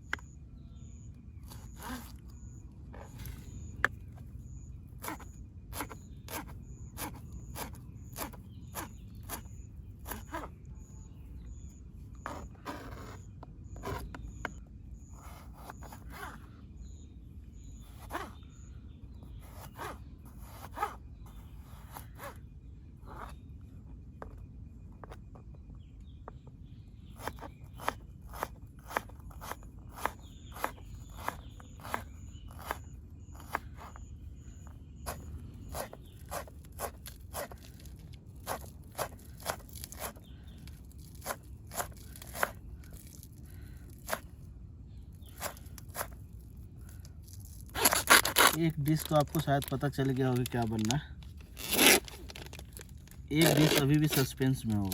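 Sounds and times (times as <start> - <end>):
faint high chirping: 0.0 - 54.9.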